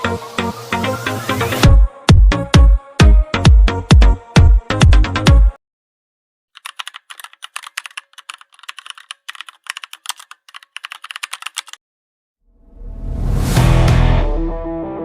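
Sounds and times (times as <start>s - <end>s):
keyboard typing clicks: 6.6s - 11.8s.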